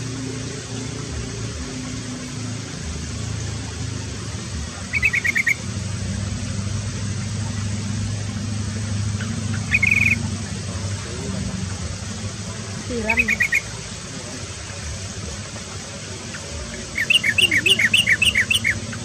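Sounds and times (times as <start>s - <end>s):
low hum: 0.0s - 19.0s
small bird chirping: 4.9s - 5.6s, 9.2s - 10.2s, 13.0s - 13.7s, 16.8s - 18.8s.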